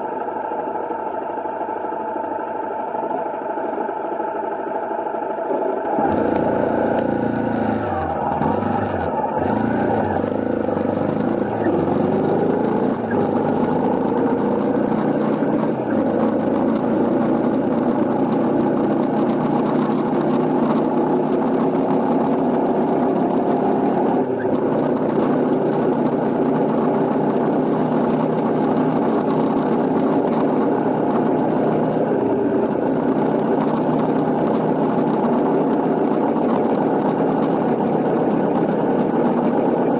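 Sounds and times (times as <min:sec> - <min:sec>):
motorcycle engine accelerating: 0:05.8 - 0:39.9.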